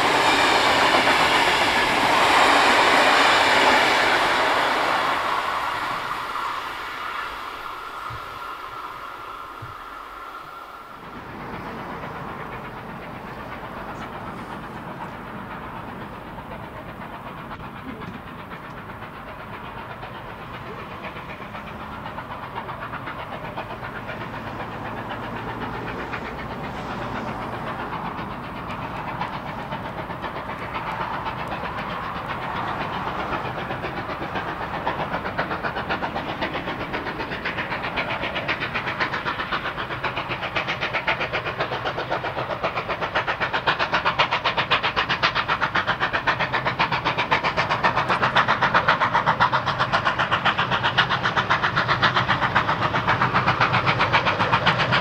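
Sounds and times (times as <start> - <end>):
approaching diesel locomotive: 0.0 - 55.0
fast regular engine pulse: 0.0 - 55.0.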